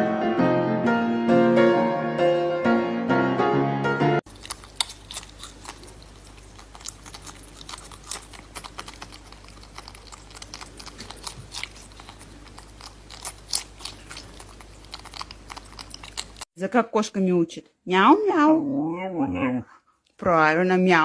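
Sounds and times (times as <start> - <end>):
steady low hum: 4.3 - 16.4
crunchy food being chewed: 4.3 - 16.5.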